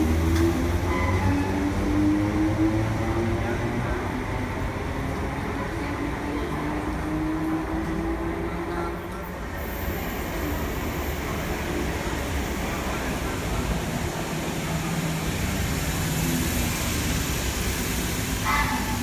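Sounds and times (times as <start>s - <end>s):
train wheels rumbling on rail: 0.0s - 19.0s
train running gear hiss: 9.6s - 12.7s.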